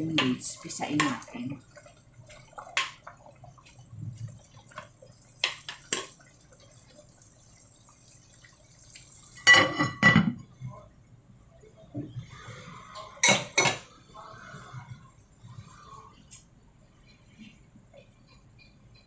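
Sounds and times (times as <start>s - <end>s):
cookware clattering: 9.5s - 10.4s, 13.2s - 13.9s.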